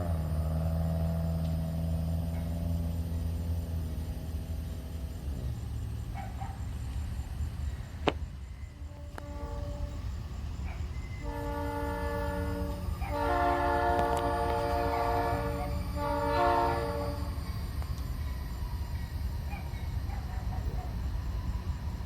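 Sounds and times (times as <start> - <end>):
low rumble of train: 0.0 - 22.0
locomotive air horn blasts: 8.7 - 10.4, 11.0 - 17.8.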